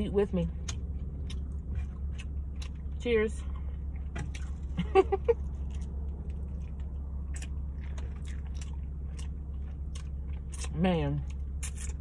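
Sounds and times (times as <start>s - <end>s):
low steady hum: 0.0s - 12.0s
chewing with wet clicks: 0.5s - 12.0s.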